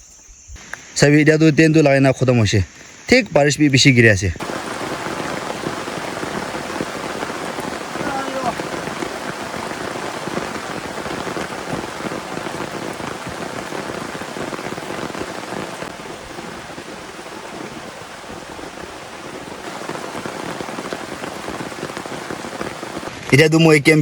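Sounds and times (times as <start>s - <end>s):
heavy rain falling: 3.8s - 24.0s.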